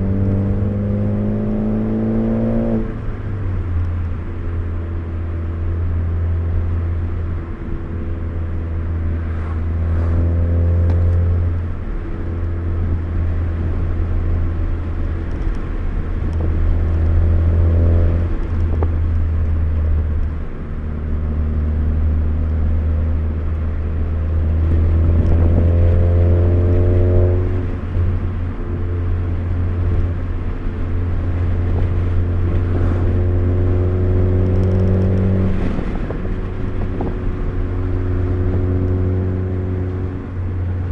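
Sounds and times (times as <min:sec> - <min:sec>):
car engine accelerating: 0:00.0 - 0:40.9
low road drone: 0:00.0 - 0:40.9.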